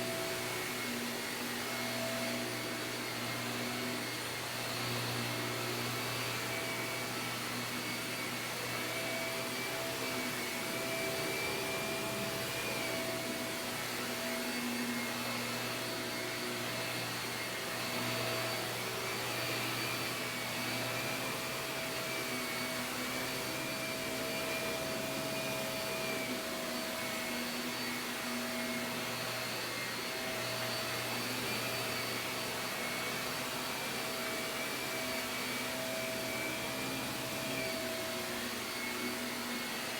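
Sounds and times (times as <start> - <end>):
vacuum cleaner running on carpet: 0.0 - 39.9.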